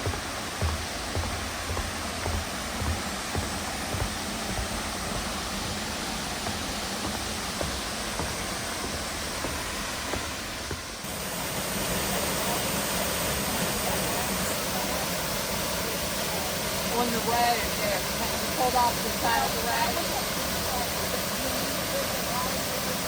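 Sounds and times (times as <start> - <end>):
soft low thumps: 0.0 - 11.1
flowing water rushing: 0.0 - 23.0.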